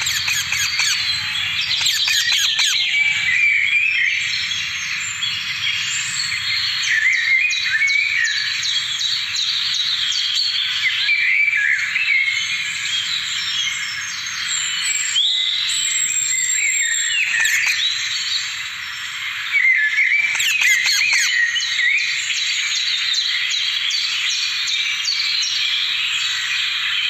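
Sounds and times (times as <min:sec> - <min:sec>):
harsh bird squawks: 0:00.0 - 0:03.5, 0:16.9 - 0:18.6, 0:20.0 - 0:22.1
many birds chirping: 0:00.0 - 0:27.0.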